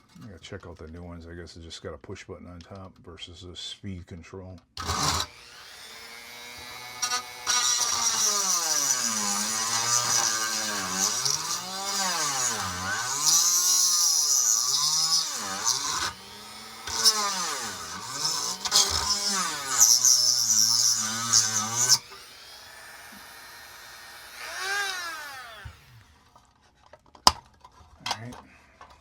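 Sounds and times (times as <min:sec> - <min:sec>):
rotary tool grinding metal: 0:04.8 - 0:26.5.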